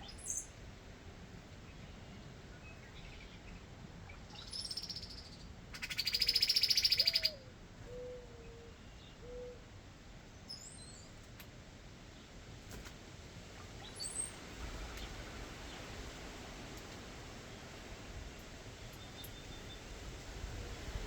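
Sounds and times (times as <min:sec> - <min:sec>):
songbird trill: 0:00.0 - 0:00.6, 0:02.6 - 0:09.6, 0:10.4 - 0:11.2, 0:13.8 - 0:15.9, 0:18.8 - 0:20.0.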